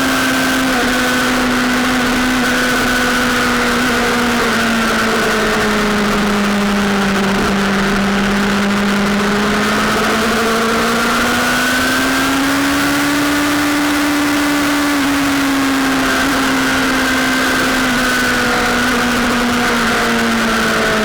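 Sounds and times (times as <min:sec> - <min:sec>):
sportbike engine at high revs: 0:00.0 - 0:21.0.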